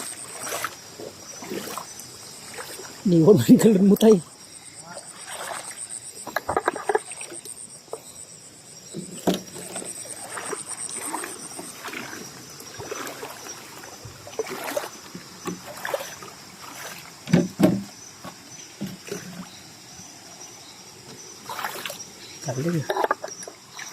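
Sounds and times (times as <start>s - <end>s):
water sloshing and splashing: 0.0s - 8.2s, 8.8s - 23.9s
night insects trilling: 0.0s - 23.9s.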